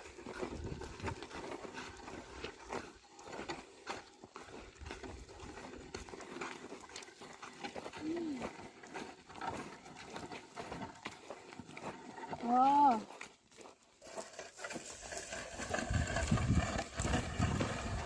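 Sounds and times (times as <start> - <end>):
hooves and plough scuffing soil: 0.0 - 18.0.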